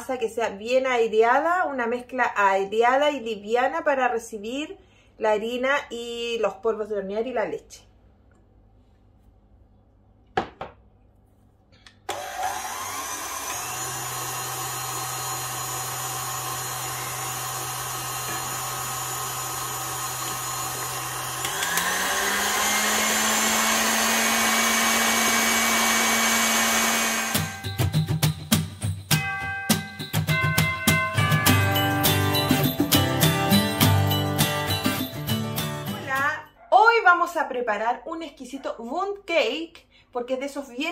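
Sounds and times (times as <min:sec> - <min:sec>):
stand mixer whisking: 0:12.1 - 0:27.6
festive music with jingling bells: 0:27.4 - 0:36.3.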